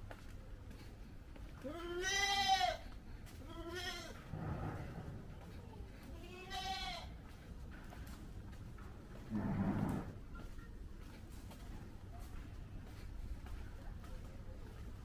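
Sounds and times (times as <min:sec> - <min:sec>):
goat bleating: 0:01.7 - 0:02.8, 0:03.5 - 0:04.2, 0:06.2 - 0:07.2.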